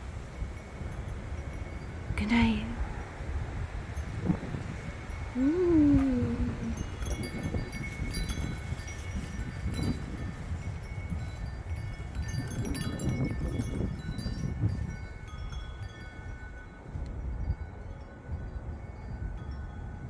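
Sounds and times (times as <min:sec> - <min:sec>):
wind gusts rumbling: 0:00.0 - 0:20.0
wind chime ringing: 0:03.9 - 0:20.0.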